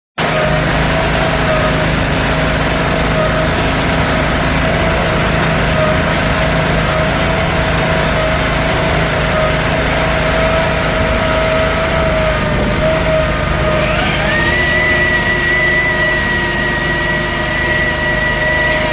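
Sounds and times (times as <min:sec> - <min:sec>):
mechanical whine: 0:00.2 - 0:18.9
small gas engine running: 0:00.2 - 0:18.9.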